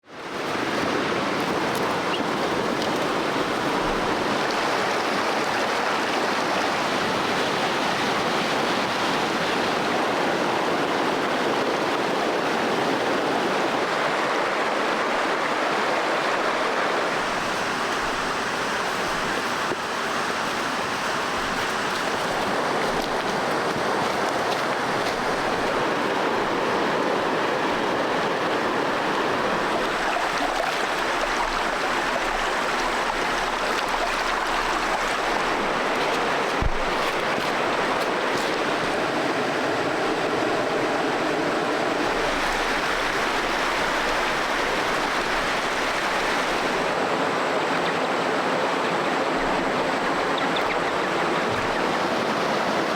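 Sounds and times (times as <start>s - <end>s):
stream rushing over rocks: 0.0s - 52.9s.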